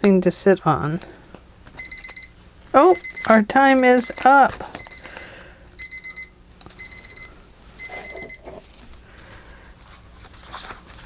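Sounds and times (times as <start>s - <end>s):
timer alarm beeping: 1.8s - 8.6s.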